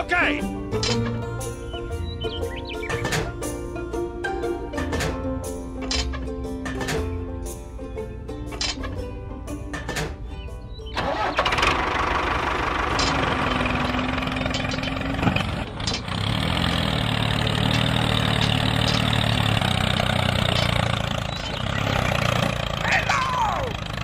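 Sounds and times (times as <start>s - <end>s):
music: 0.0s - 12.1s
vehicle engine starting and running: 0.0s - 24.0s.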